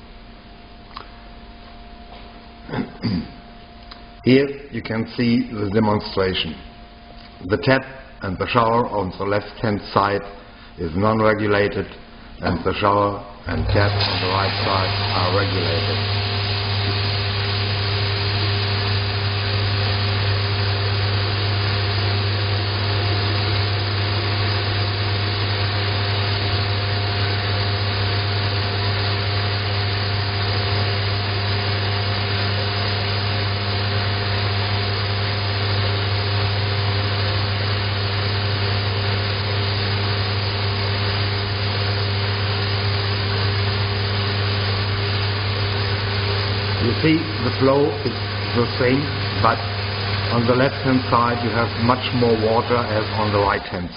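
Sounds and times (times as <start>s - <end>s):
constant low hum: 0.0s - 13.9s.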